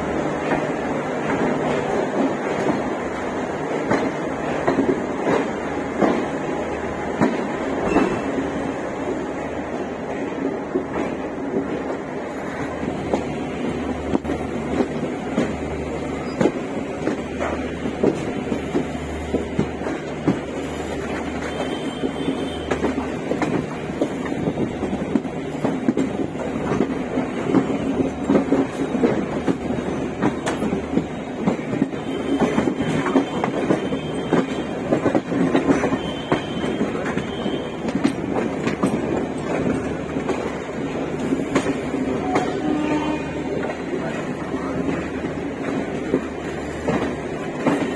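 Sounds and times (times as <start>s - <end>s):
train wheels rumbling: 0.0s - 47.9s
wheels clacking over rail joints: 10.4s - 47.9s.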